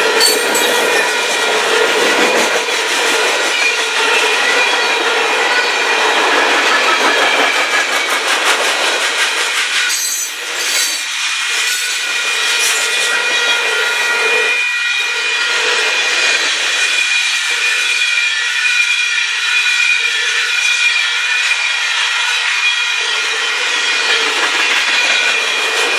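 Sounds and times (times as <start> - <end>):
train wheels rumbling on rail: 0.0 - 25.9
metallic ringing tones: 0.2 - 1.3.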